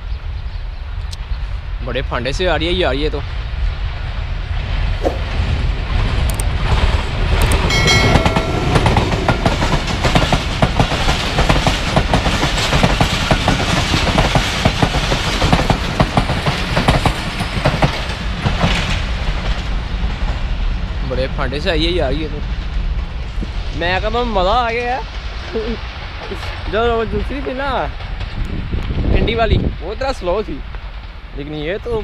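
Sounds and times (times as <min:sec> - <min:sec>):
train wheels clattering over rail joints: 0:06.3 - 0:20.9.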